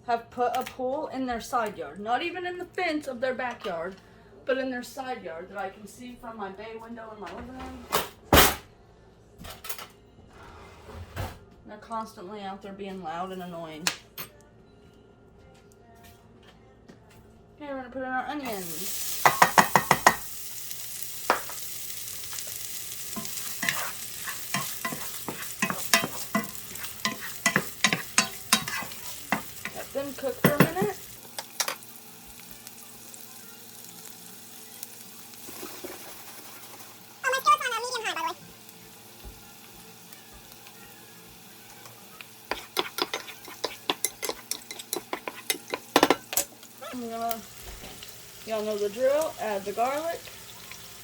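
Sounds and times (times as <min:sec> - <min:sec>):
onions sizzling in a skillet: 0:18.5 - 0:51.0
utensil scraping a pan: 0:23.1 - 0:31.0, 0:42.5 - 0:46.0
utensil clattering: 0:23.1 - 0:31.8.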